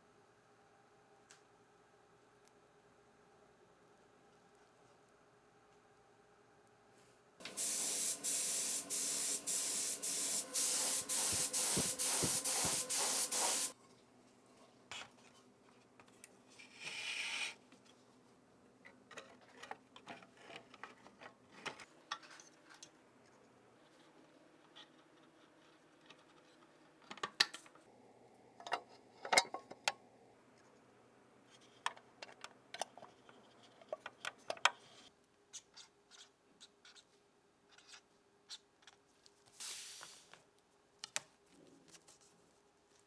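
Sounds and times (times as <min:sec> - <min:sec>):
spray paint hissing: 0:07.4 - 0:13.8, 0:39.6 - 0:40.2.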